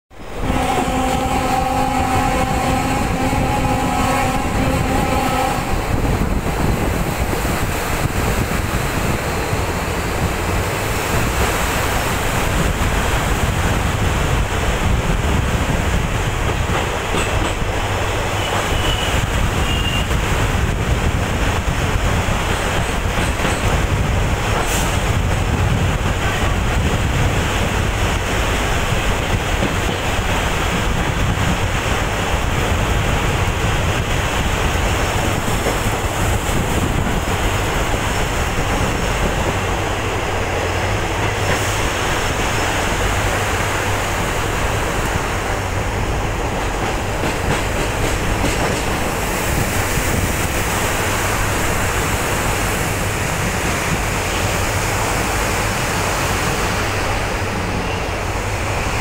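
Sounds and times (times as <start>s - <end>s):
train rumbling over bridge: 0.0s - 59.0s
train horn: 0.2s - 6.3s, 18.3s - 20.2s.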